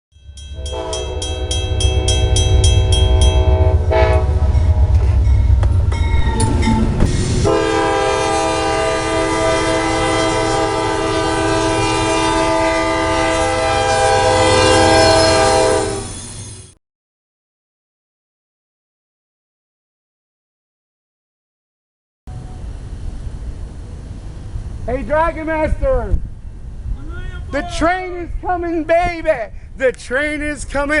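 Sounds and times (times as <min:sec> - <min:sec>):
bell ringing rapidly: 0:00.1 - 0:03.8
diesel locomotive rumble: 0:00.2 - 0:16.8, 0:22.3 - 0:30.9
locomotive air horn: 0:00.6 - 0:05.5, 0:07.4 - 0:16.2.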